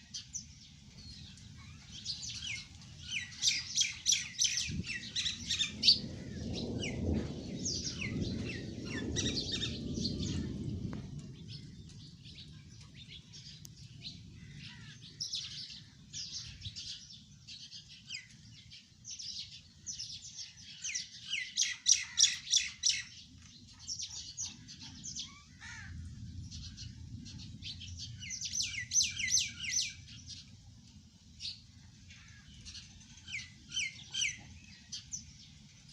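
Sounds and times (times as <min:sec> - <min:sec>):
low rumble: 0:04.6 - 0:14.2.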